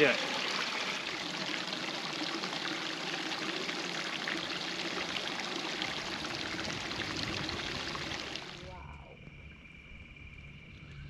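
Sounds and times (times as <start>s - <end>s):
small waterfall splashing into pool: 0.0s - 8.6s.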